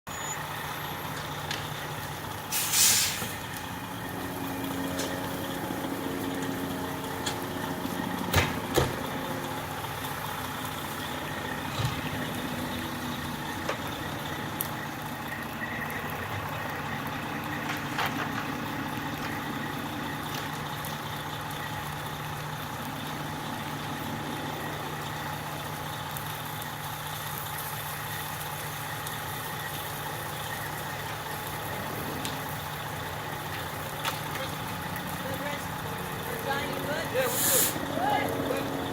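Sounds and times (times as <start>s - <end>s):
fire engine running: 0.0s - 38.9s
air brakes hissing: 2.5s - 3.5s, 37.2s - 37.9s.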